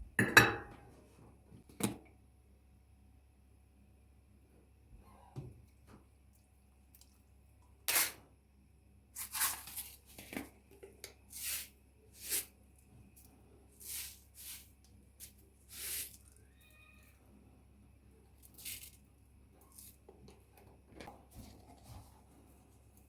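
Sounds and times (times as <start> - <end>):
sharp noisy kitchen strokes: 9.2 - 10.0, 11.3 - 12.6, 13.7 - 16.4.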